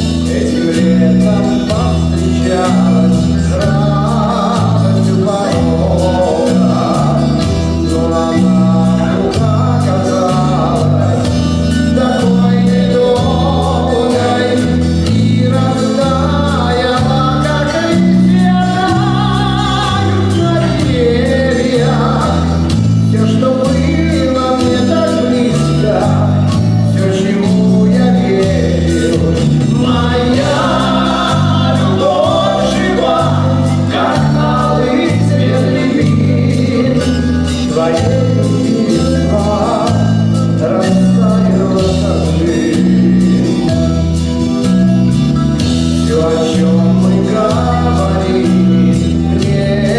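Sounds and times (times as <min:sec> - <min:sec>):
bass line: 0:00.0 - 0:49.9
electric instruments: 0:00.0 - 0:49.9
voices singing: 0:00.0 - 0:49.9.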